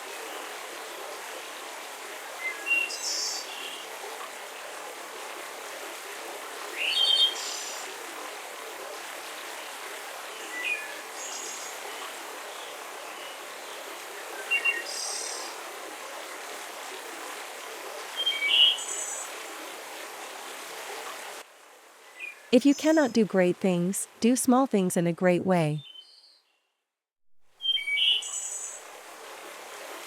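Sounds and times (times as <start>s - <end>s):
forest ambience hiss: 0.0s - 3.9s, 6.5s - 22.5s, 27.6s - 30.0s.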